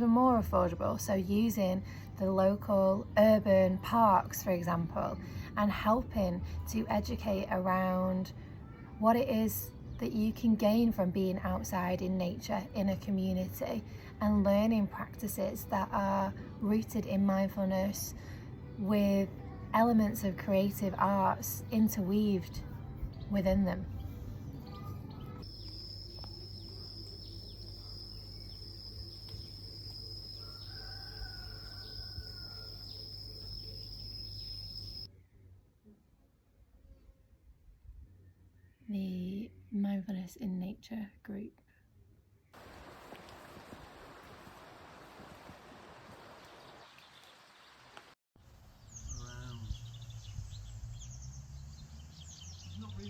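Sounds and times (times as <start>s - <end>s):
birds chirping: 23.2s - 35.1s, 48.8s - 53.0s
high-pitched insect drone: 25.5s - 35.1s.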